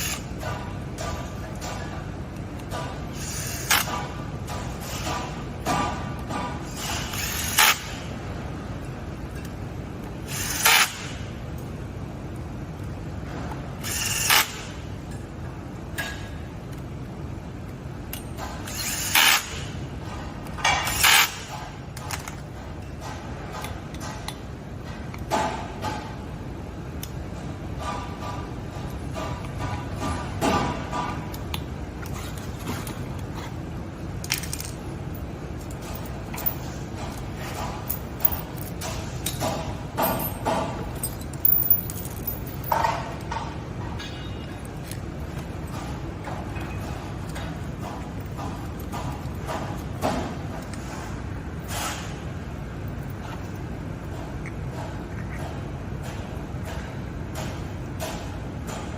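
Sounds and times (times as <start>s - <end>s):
tools and metal parts clinking: 8.8s - 11.7s, 12.3s - 16.9s, 18.0s - 26.2s, 27.8s - 52.2s, 52.8s - 58.9s
metal tools clinking and scraping: 34.2s - 45.5s.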